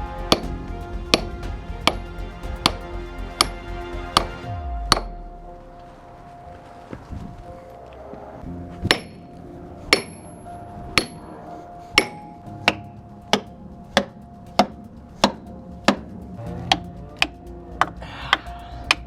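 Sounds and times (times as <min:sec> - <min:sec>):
hammer striking wedges: 0:00.3 - 0:01.3, 0:04.2 - 0:05.2, 0:08.8 - 0:09.2, 0:09.9 - 0:10.4, 0:11.0 - 0:11.2, 0:12.0 - 0:16.1.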